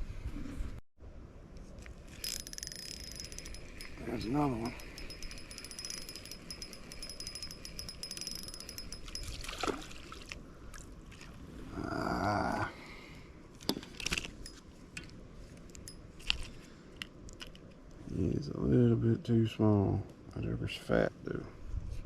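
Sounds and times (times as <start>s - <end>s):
fishing reel ticking: 2.2s - 9.4s.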